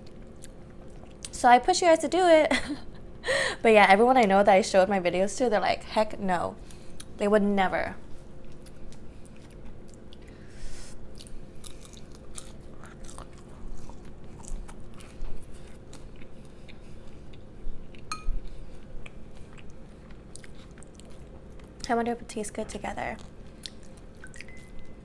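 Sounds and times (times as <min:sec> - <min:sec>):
faint steady hum: 0:00.0 - 0:25.0
chewing and biting food: 0:08.3 - 0:10.4, 0:11.0 - 0:22.0, 0:22.7 - 0:25.0.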